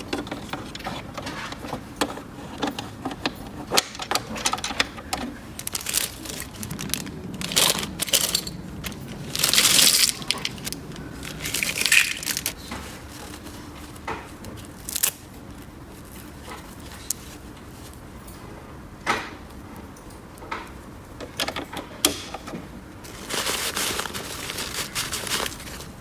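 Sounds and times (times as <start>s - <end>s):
crinkling rustle: 5.1s - 18.1s, 23.0s - 26.0s.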